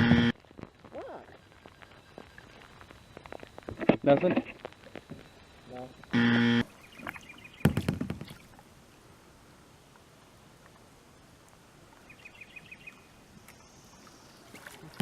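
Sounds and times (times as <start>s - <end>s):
faint outdoor ambience: 0.0s - 15.0s
knock against boat: 7.6s - 8.4s.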